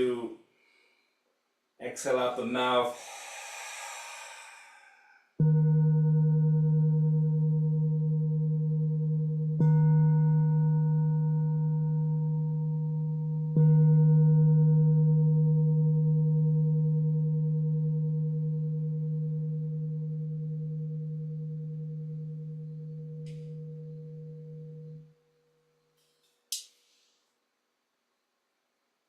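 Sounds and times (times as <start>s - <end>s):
singing bowl ringing: 5.4s - 25.8s.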